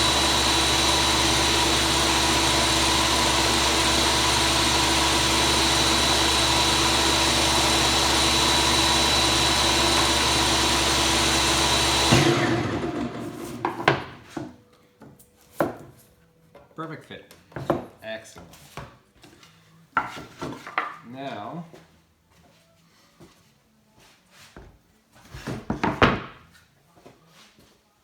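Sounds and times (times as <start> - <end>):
electric power tool cutting wood: 0.0 - 14.2.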